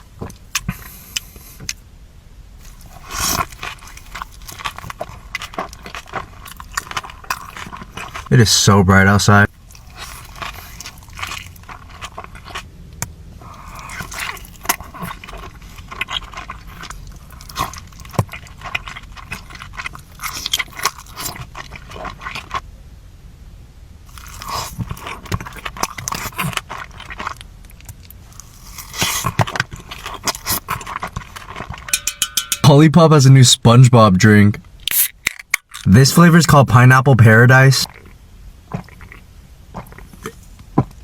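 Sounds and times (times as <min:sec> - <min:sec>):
person chewing food: 0:00.0 - 0:01.8, 0:02.6 - 0:08.3, 0:09.5 - 0:22.6, 0:24.1 - 0:32.6, 0:37.8 - 0:41.0
clicks and crunches: 0:24.1 - 0:32.2, 0:34.7 - 0:35.9.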